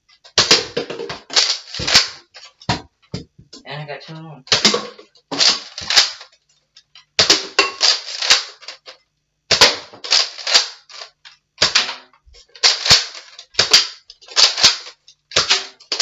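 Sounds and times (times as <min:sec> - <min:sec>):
plastic toy blaster clicking: 0:05.4 - 0:06.4, 0:07.2 - 0:11.9, 0:12.6 - 0:16.0.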